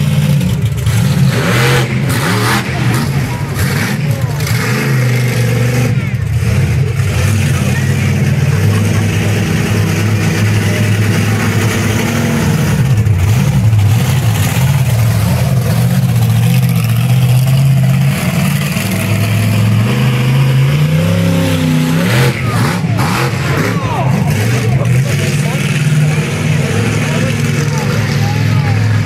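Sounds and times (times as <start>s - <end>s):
truck engine running: 0.0s - 29.0s.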